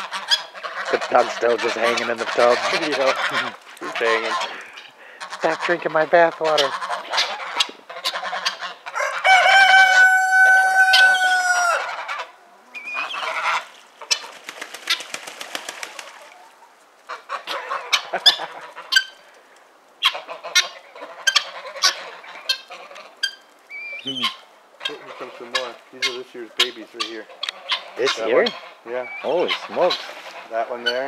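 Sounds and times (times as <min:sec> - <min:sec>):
chickens clucking: 0:00.0 - 0:31.0
rooster crowing: 0:08.9 - 0:12.3.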